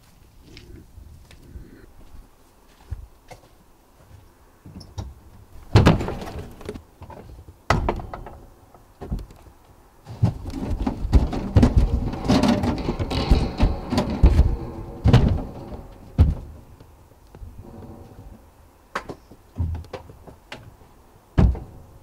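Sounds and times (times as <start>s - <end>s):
small knocks and rustling: 2.7s - 22.0s
loud thud of shed door: 5.7s - 6.7s, 7.7s - 8.5s, 10.2s - 16.8s, 21.4s - 22.0s.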